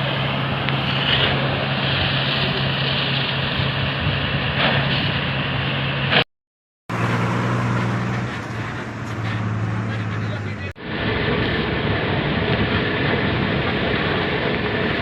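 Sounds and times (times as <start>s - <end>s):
heavy vehicle engine running: 0.0s - 6.2s, 6.9s - 15.0s
loud rushing noise: 6.9s - 15.0s.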